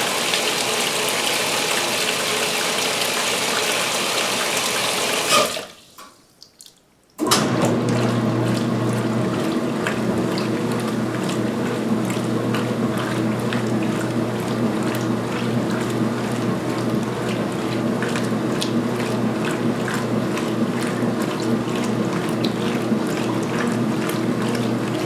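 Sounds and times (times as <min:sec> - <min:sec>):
washer filling with water: 0:00.0 - 0:06.3, 0:07.2 - 0:25.0
washer motor hum and agitation: 0:07.2 - 0:25.0
water churning: 0:07.4 - 0:25.0.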